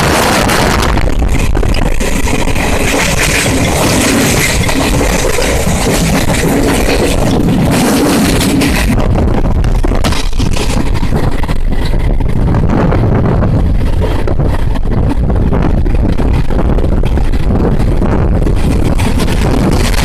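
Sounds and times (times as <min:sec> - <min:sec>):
train rumble: 0:00.0 - 0:20.0
wind buffeting microphone: 0:00.0 - 0:20.0.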